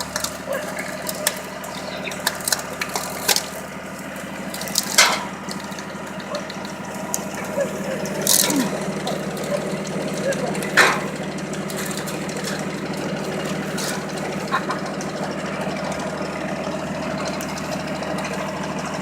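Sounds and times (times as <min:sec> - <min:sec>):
log splitter knocks and clicks: 0:00.0 - 0:15.2
loud crack: 0:00.0 - 0:19.0
tractor engine running: 0:00.0 - 0:19.0.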